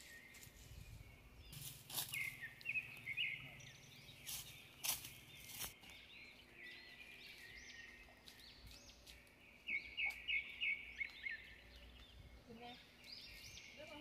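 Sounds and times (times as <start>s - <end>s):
wild birds chirping: 0.0s - 14.0s.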